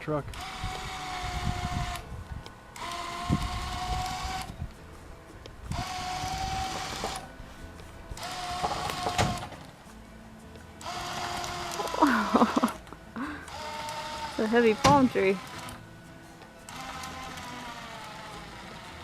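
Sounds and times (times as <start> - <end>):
electric winch whining: 0.0 - 4.8, 5.6 - 9.7, 10.8 - 19.0.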